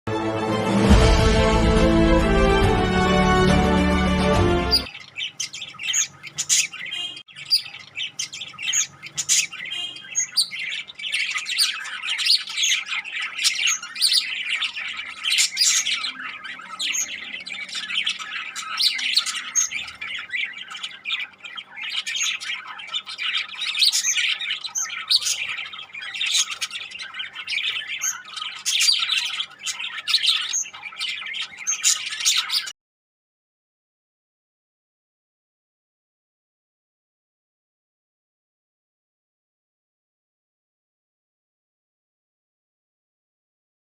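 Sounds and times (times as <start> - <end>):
parrots chattering and squawking: 4.5 - 32.7.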